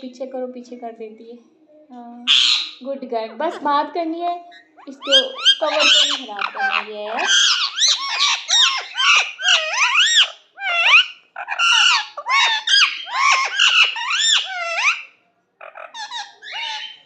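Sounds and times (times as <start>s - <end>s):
parrot chirping and whistling: 2.3s - 2.8s, 7.2s - 15.1s.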